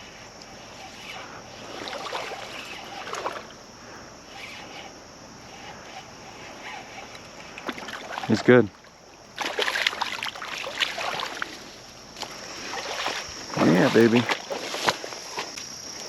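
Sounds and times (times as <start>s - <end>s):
creek water flowing: 0.0s - 16.0s
fish splashing at the surface: 7.6s - 8.6s, 9.3s - 15.6s.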